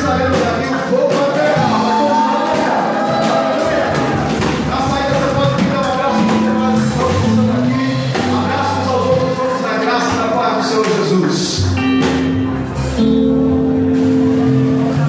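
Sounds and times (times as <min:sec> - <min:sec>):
drum hits: 0:00.0 - 0:09.5, 0:10.8 - 0:12.8
live band playing worship music: 0:00.0 - 0:15.0.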